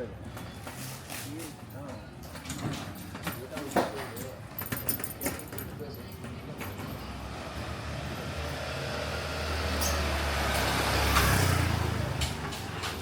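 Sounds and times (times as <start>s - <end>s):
vehicle passing by: 7.0s - 13.0s.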